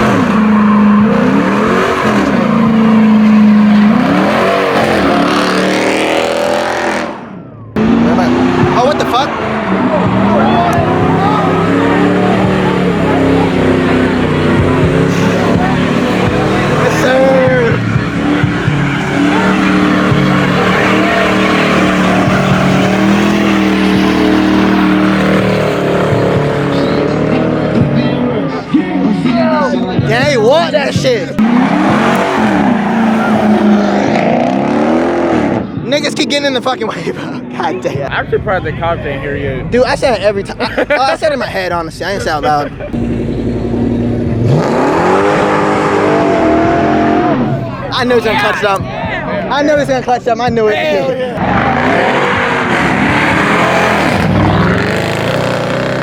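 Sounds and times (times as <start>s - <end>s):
car engine revving hard: 0.0s - 28.4s, 30.1s - 35.8s, 42.9s - 48.5s, 51.4s - 56.0s
tires squealing: 0.0s - 37.9s, 39.0s - 56.0s.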